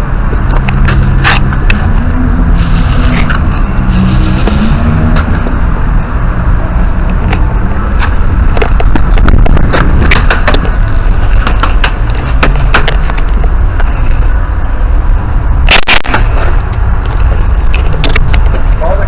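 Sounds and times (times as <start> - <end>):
low rumble of handling: 0.0 - 19.0
loud cracks: 15.7 - 16.4.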